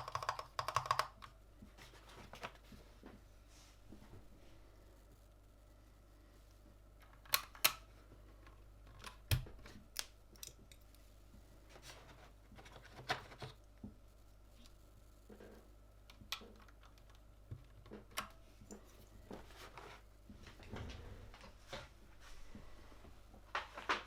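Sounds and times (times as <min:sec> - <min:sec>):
plastic keyboard parts clicking: 0:00.0 - 0:01.4, 0:07.0 - 0:07.9, 0:16.1 - 0:18.4.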